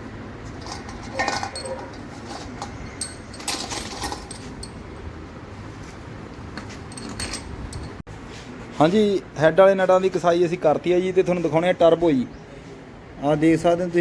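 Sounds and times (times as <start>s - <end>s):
metal bolts clinking: 0.6s - 4.9s, 6.6s - 8.0s.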